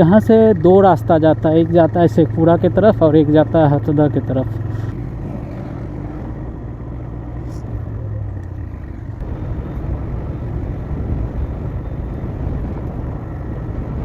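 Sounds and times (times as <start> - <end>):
motorcycle engine running: 0.0 - 14.0
wind rumble: 4.6 - 14.0.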